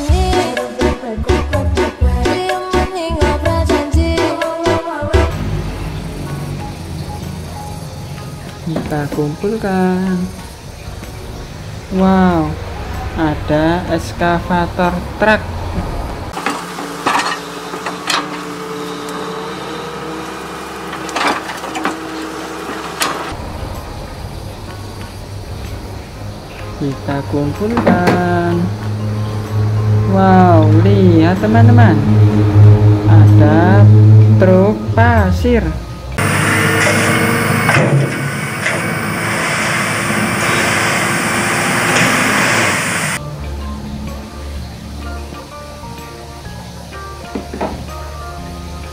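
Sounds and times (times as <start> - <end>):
loud rushing engine noise: 5.1 - 8.7, 10.4 - 44.2
toy vehicles knocking and clattering: 16.4 - 18.5.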